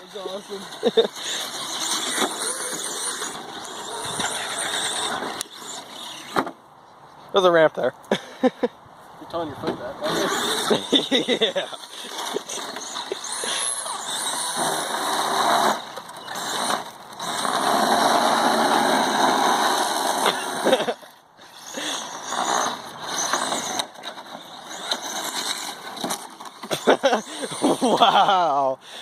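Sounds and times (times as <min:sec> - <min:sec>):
high electric motor whine: 0:00.0 - 0:06.5
tires and drivetrain on ground: 0:00.0 - 0:29.0.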